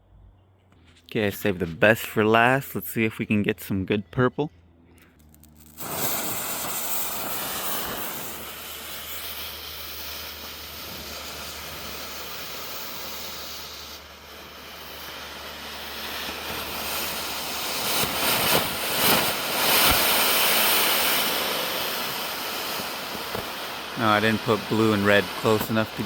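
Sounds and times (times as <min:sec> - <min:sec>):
smoke fireworks hissing: 0:05.2 - 0:26.0.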